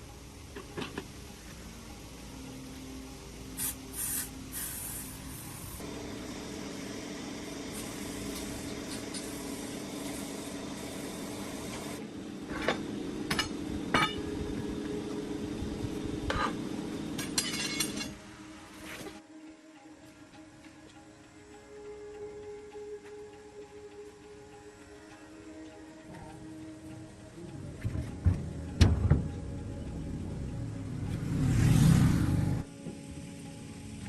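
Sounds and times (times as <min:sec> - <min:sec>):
machine humming: 0:01.6 - 0:18.1
metal parts clinking: 0:17.2 - 0:18.2.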